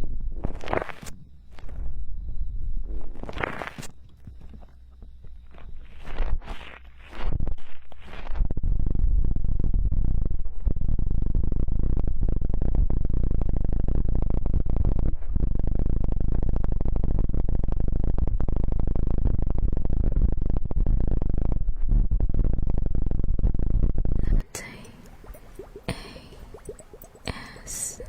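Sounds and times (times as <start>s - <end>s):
ear-cleaning tools scraping microphone: 2.9s - 8.8s.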